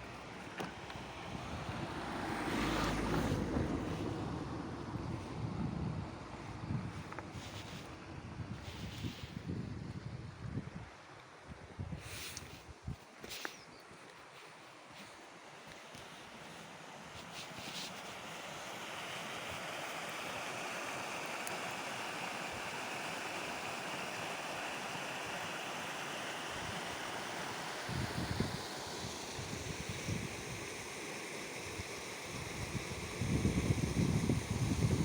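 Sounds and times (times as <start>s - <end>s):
wind buffeting microphone: 3.1s - 13.0s, 32.6s - 35.0s
rushing flowing water: 15.0s - 29.3s.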